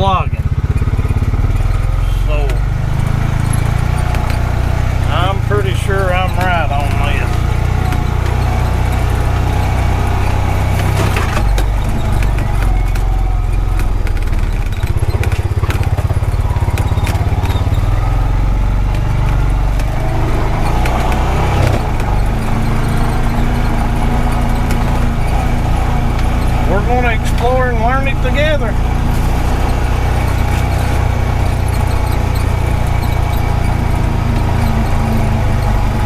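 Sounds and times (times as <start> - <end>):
utility vehicle engine drone: 0.0 - 36.0
clicks and knocks from bumps: 10.7 - 17.9.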